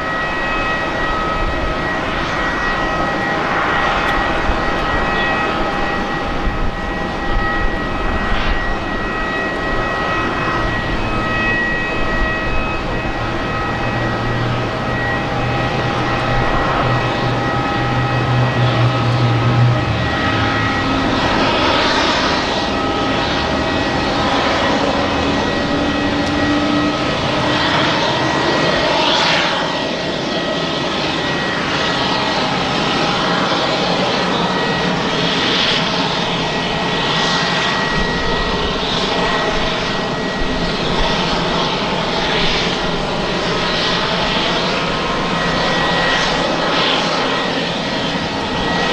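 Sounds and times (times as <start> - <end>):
high-pitched whine: 0.0 - 48.9
jet airliner roar: 0.0 - 48.9.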